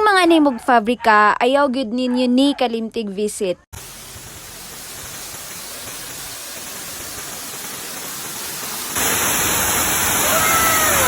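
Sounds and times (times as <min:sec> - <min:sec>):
rushing water: 0:03.8 - 0:11.0.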